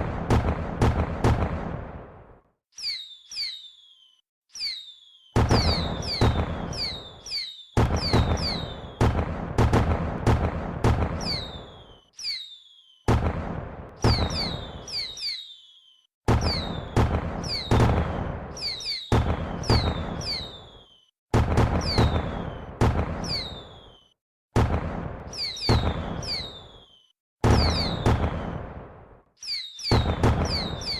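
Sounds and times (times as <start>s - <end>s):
fireworks booming bursts: 0.0s - 2.4s, 4.6s - 30.9s
falling firework whistles: 2.8s - 9.2s, 11.0s - 21.1s, 21.7s - 24.2s, 25.3s - 28.8s, 29.4s - 30.9s.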